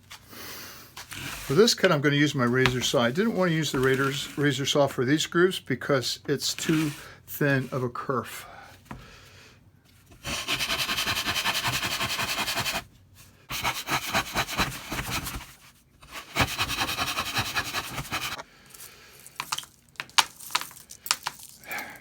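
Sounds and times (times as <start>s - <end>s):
saw cutting: 10.2s - 12.8s, 13.5s - 15.4s, 16.0s - 18.4s.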